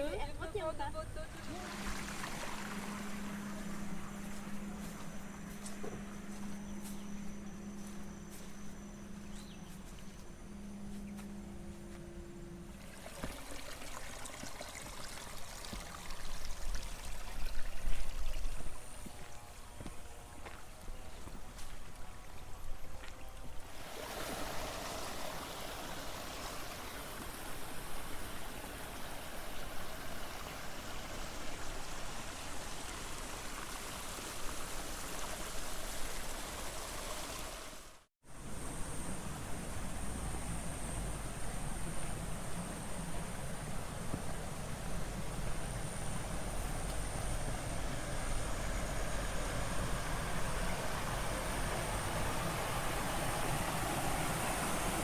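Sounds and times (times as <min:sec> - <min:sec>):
water running and trickling: 0:00.0 - 0:05.8, 0:12.7 - 0:37.9
low hum: 0:00.0 - 0:14.4, 0:38.5 - 0:55.0.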